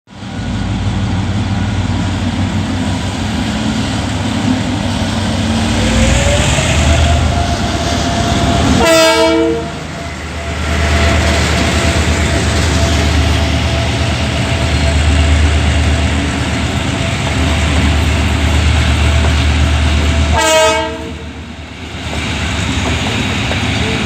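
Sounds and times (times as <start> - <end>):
diesel train engine whining: 0.2 - 24.0
train horn blast: 6.9 - 10.5, 20.3 - 21.3.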